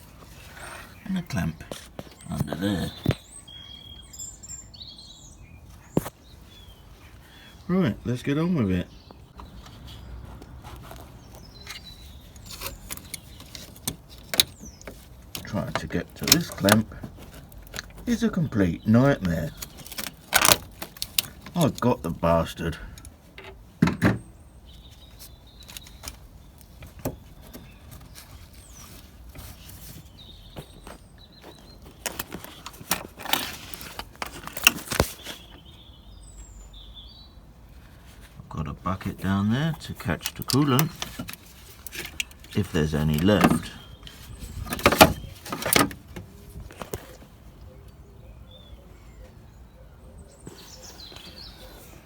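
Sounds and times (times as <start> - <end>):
faint bird chirp: 0.0 - 16.8, 34.8 - 52.0
hand tools clattering: 40.2 - 46.0.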